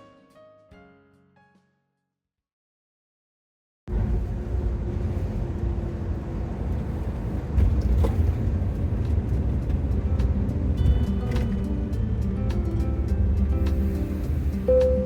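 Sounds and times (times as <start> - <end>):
van engine and road rumble: 3.9 - 15.0.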